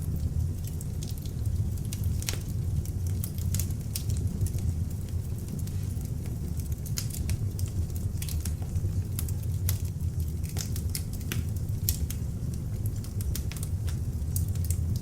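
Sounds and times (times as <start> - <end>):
log fire crackling and popping: 0.0 - 15.0.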